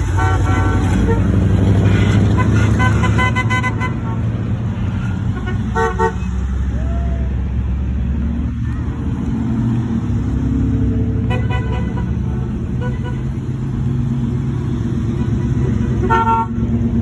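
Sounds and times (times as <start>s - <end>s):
car engines rumbling: 0.0s - 17.0s
car horn short toots: 15.8s - 16.6s.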